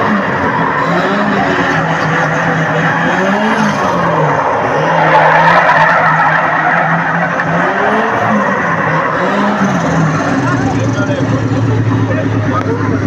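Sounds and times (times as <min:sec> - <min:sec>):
motorcycle engine at high revs: 0:00.0 - 0:04.9, 0:07.5 - 0:13.0.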